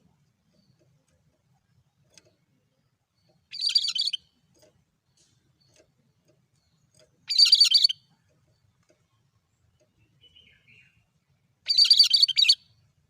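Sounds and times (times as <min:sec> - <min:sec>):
bird high chattering call: 0:03.5 - 0:04.2, 0:07.3 - 0:08.0, 0:11.7 - 0:12.6.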